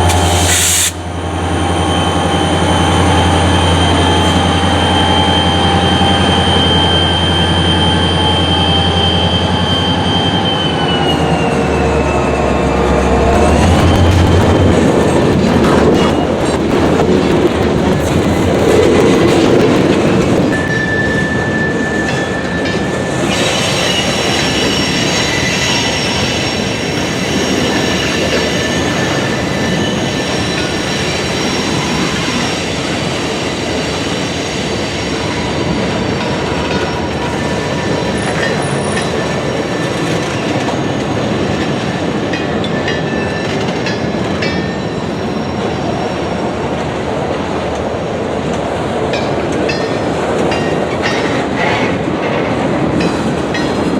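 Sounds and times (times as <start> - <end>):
high wheel squeal: 0.0 - 14.4, 20.5 - 40.9
train cars rumbling and clattering: 0.0 - 53.9.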